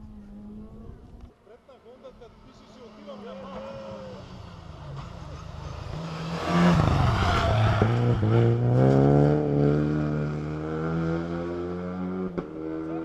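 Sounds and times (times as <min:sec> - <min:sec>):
rally car engine pulling hard: 0:03.0 - 0:13.0.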